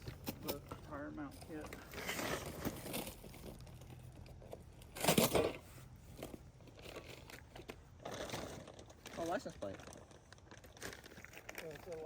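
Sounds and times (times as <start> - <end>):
packaging rustling and crinkling: 6.2 - 12.0.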